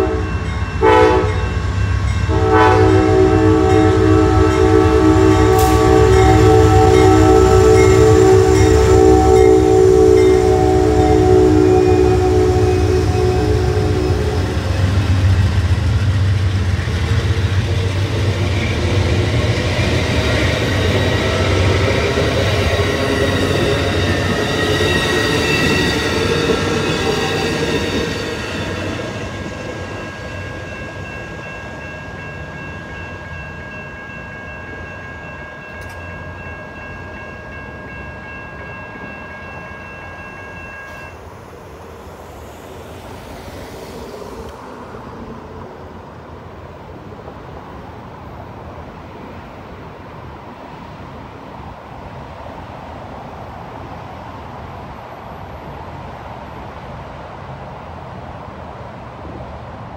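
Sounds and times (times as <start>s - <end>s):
crossing warning bell ringing: 0.0s - 41.8s
train cars rolling on track: 0.0s - 59.9s.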